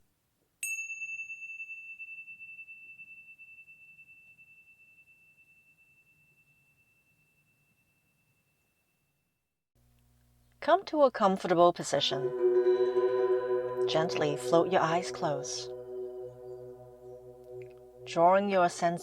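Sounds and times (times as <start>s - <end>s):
meditation chime ringing: 12.0s - 19.0s.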